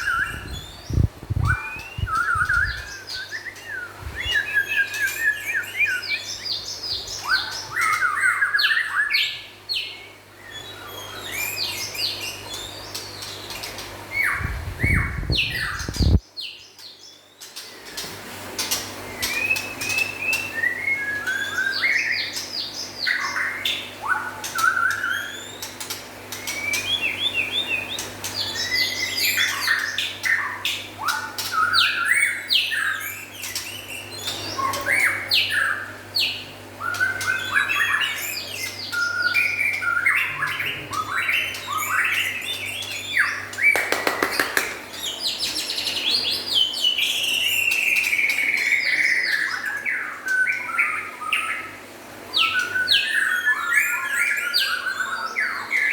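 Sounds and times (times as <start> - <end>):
songbird whistling: 0.0 - 6.6.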